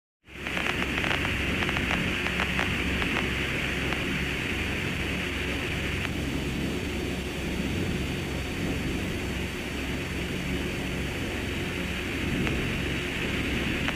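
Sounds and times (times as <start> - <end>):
radio static hiss: 0.3 - 6.3, 9.4 - 13.9
low hum: 0.3 - 13.9
clicks and crackles: 0.4 - 4.2, 5.9 - 6.2, 13.7 - 13.9.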